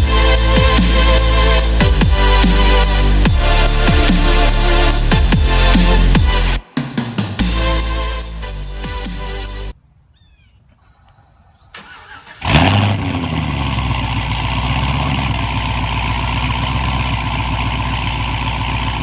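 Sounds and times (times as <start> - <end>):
background music: 0.0 - 9.8
car engine starting and idling: 11.7 - 19.0.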